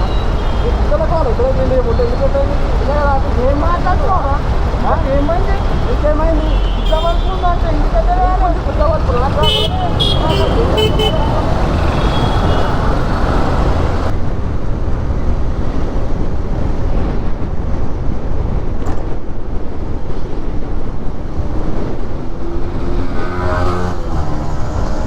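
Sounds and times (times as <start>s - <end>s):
motorbike engine: 0.0s - 14.1s, 22.2s - 25.0s
nearby vehicle engine: 0.0s - 14.1s
road noise: 0.0s - 25.0s
wind noise: 0.0s - 25.0s.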